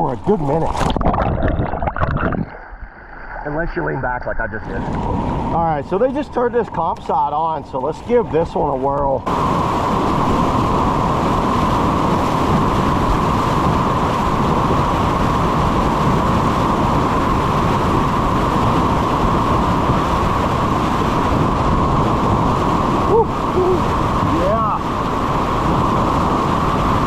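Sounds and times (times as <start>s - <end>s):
whitewater rapids rushing: 9.3s - 27.0s.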